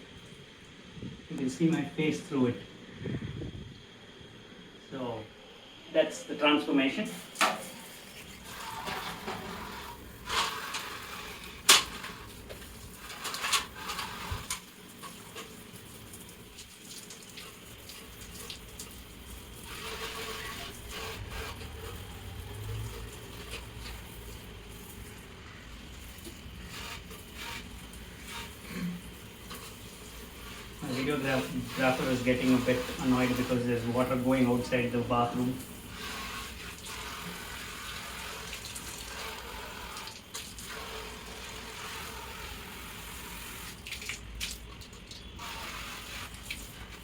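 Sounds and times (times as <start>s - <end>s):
water running and splashing: 7.1s - 47.0s.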